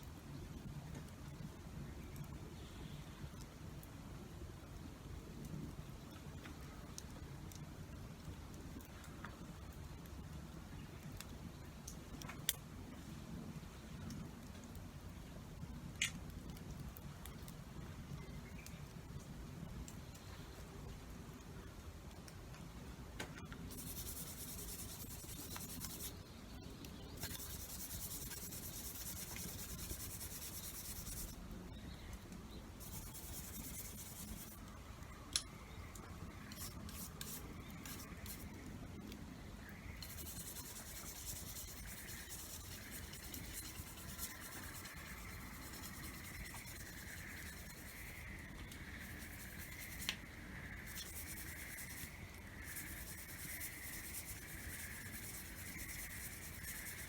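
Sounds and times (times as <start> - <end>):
scraping on a tool: 23.7 - 26.2, 27.2 - 31.4, 32.8 - 34.6, 36.4 - 38.6, 39.9 - 57.0.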